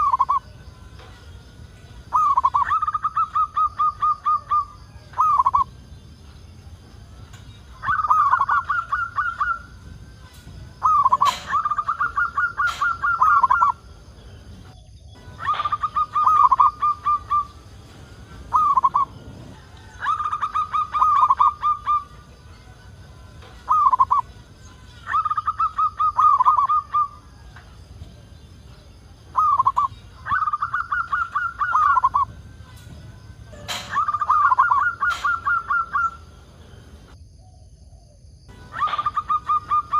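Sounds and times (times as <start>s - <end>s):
dove cooing: 2.0s - 5.7s, 7.7s - 14.1s, 15.2s - 22.6s, 23.4s - 39.9s.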